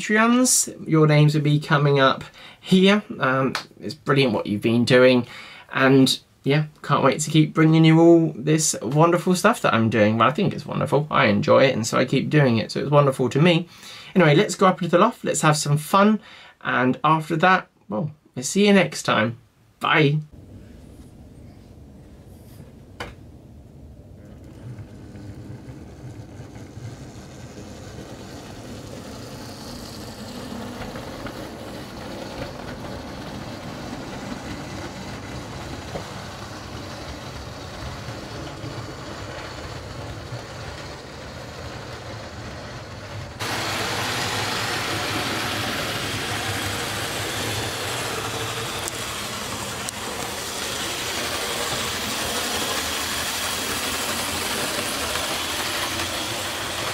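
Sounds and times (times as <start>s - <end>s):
wheels rattling on rails: 23.7s - 56.9s
model train motor whirr: 24.1s - 56.9s.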